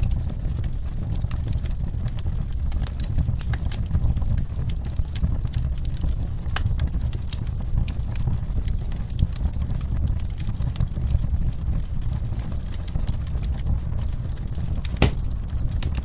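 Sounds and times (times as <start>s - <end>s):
fire crackling and popping: 0.0s - 16.0s
rain rumbling: 9.2s - 16.0s.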